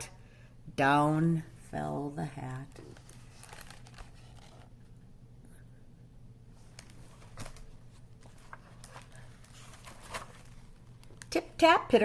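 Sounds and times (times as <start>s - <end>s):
faint clicks and rustles: 2.7s - 5.0s, 6.6s - 11.4s.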